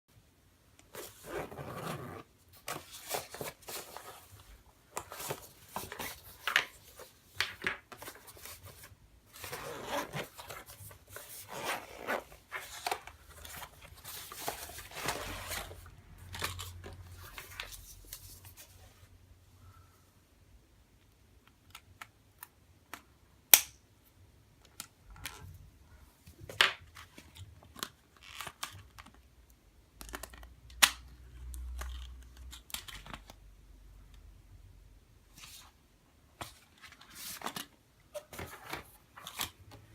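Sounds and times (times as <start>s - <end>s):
plastic crinkling and rustling: 2.6s - 18.8s.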